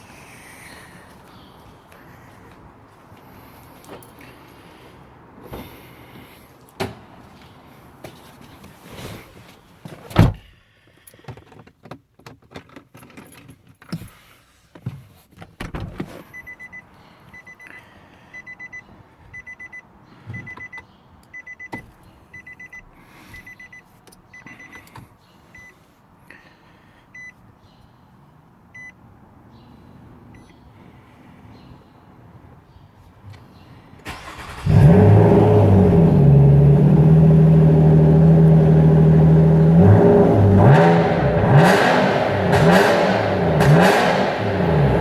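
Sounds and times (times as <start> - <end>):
car door shutting: 9.9 - 10.5, 15.4 - 16.3
car warning chime beeping: 16.3 - 25.8, 27.2 - 27.4, 28.8 - 29.0.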